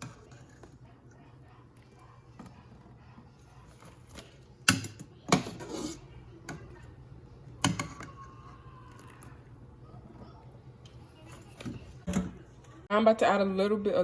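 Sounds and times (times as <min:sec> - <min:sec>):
knocks of pots and utensils: 0:07.6 - 0:08.2.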